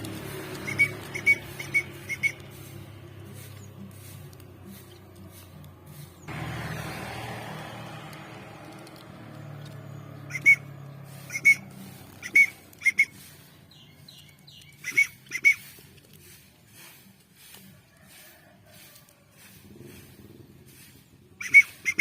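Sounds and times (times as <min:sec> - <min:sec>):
rustle of handling: 0:00.0 - 0:10.2, 0:10.8 - 0:22.0
young songbird chirping: 0:00.6 - 0:02.7, 0:09.8 - 0:15.8.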